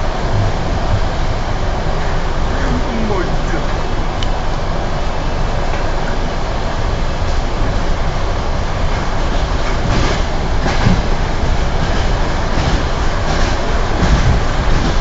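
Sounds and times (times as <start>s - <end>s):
train carriage rumble: 0.0s - 15.0s
wheels knocking: 8.8s - 15.0s.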